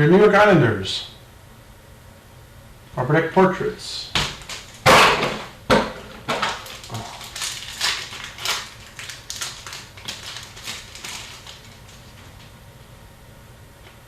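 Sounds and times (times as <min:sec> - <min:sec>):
foil wrappers crinkling and tearing: 0:04.3 - 0:05.0, 0:06.3 - 0:12.6.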